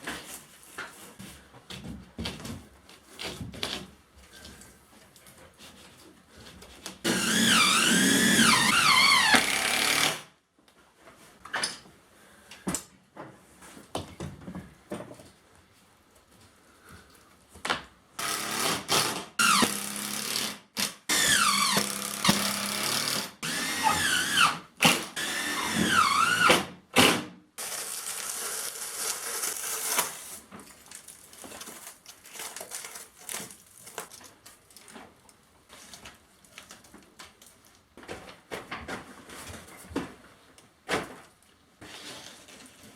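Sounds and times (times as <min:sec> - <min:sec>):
power drill running: 0:07.1 - 0:10.2, 0:21.1 - 0:26.5.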